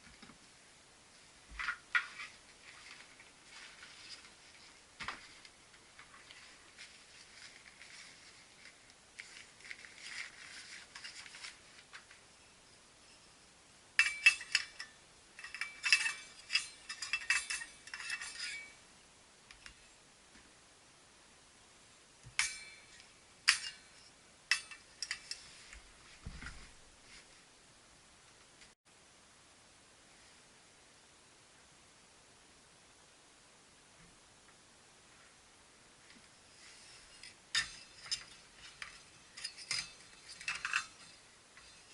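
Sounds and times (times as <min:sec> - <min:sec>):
soft rustling: 0:01.1 - 0:12.6, 0:24.9 - 0:27.6, 0:35.0 - 0:41.9
thin metal parts clinking: 0:14.0 - 0:18.8, 0:22.4 - 0:25.6, 0:36.9 - 0:41.9.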